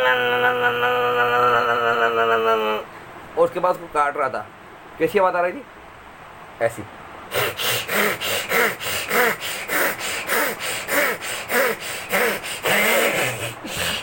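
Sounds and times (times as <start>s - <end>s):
man imitating sawing with voice: 0.0s - 2.9s, 7.3s - 14.0s.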